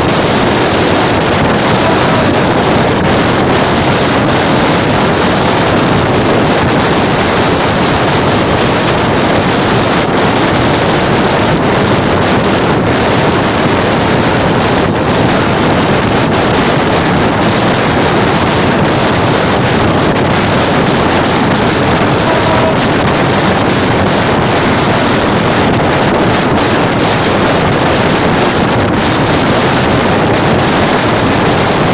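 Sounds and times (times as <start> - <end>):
moving diesel train: 0.0 - 29.8
wind on microphone: 0.0 - 31.9.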